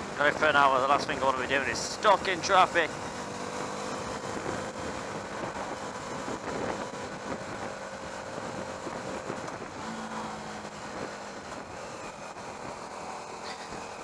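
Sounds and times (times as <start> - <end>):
motorcycle engine running: 0.0 - 14.0
wind rush on microphone: 4.1 - 12.9.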